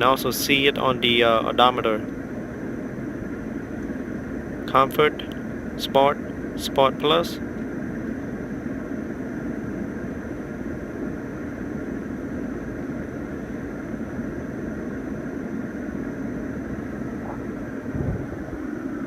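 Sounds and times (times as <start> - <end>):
faint high-pitched whine: 0.0 - 19.0
car cabin hum: 10.9 - 19.0.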